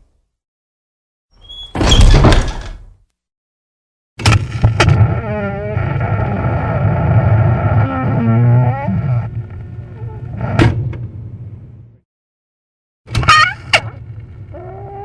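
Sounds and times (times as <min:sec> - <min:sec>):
door hinges creaking: 0:01.4 - 0:02.9.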